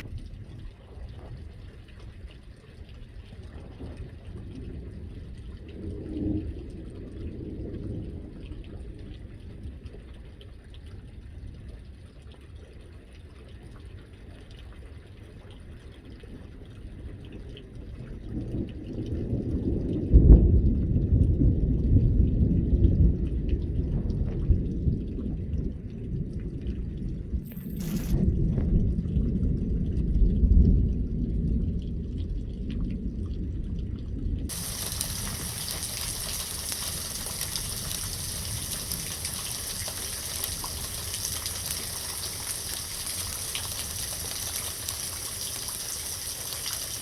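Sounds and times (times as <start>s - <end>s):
thunder rumbling: 18.6s - 47.0s
rain falling: 34.5s - 47.0s.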